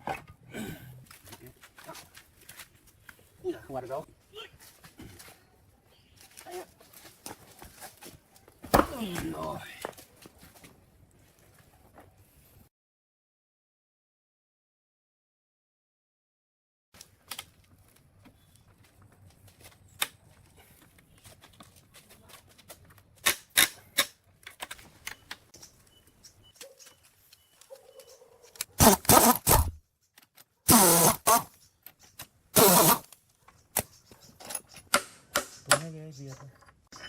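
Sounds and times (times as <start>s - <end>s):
harsh machine noise bursts: 28.8s - 29.8s, 30.7s - 31.5s
metal tools clinking: 34.0s - 34.9s.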